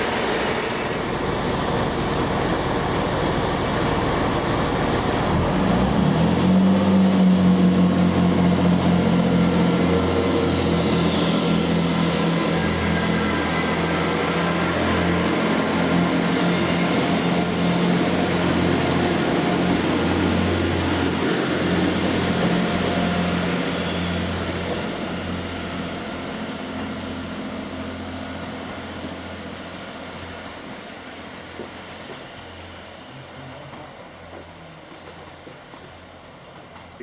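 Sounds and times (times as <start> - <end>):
diesel train engine drone: 0.0 - 37.0
high-pitched wheel squeals: 16.2 - 29.0.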